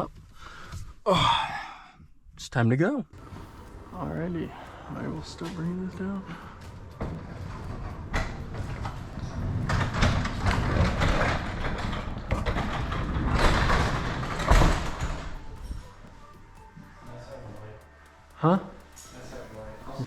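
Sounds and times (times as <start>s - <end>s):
garage door rattling along tracks: 3.2s - 16.9s.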